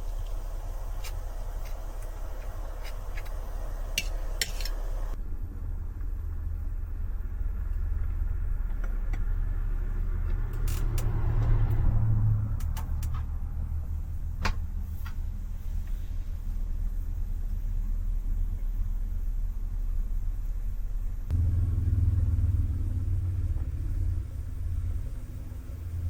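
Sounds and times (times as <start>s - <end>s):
low rumble: 0.0s - 26.0s.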